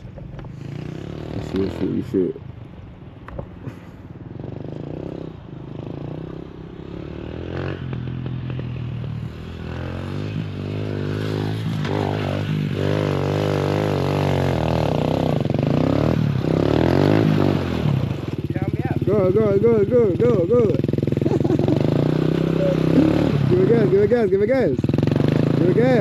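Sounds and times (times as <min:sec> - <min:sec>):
dirt bike engine revving: 0:00.0 - 0:02.4, 0:03.7 - 0:26.0.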